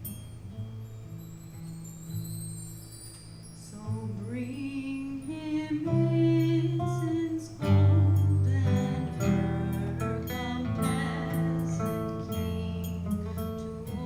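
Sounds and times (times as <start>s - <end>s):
guitar: 0.0s - 14.0s
person singing: 3.7s - 14.0s.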